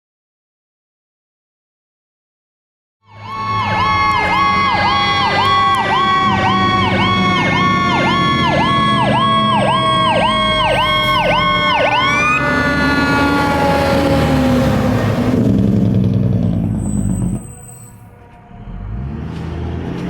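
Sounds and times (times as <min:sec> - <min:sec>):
electronic siren cycling rapidly: 0:03.1 - 0:15.2, 0:16.8 - 0:18.2
siren winding down: 0:03.1 - 0:19.5
fire truck engine passing: 0:03.1 - 0:20.0.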